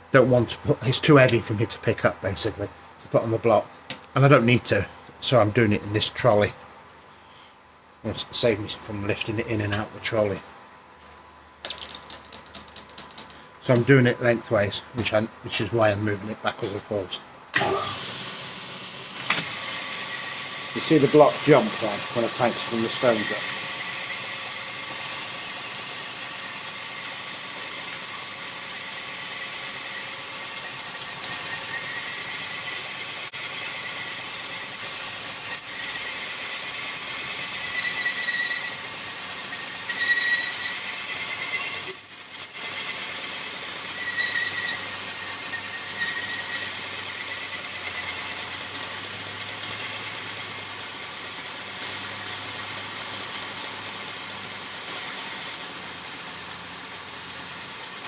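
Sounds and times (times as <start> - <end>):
honing stones grinding with whine: 19.4 - 57.9.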